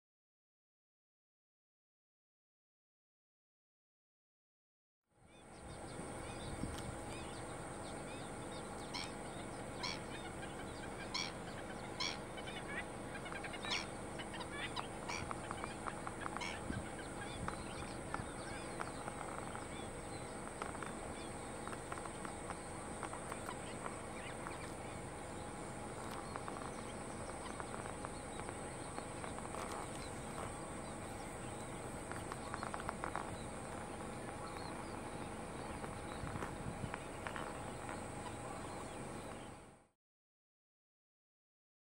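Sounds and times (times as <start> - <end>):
steady high hiss: 5.3 - 39.5
bird short calls: 9.8 - 20.0.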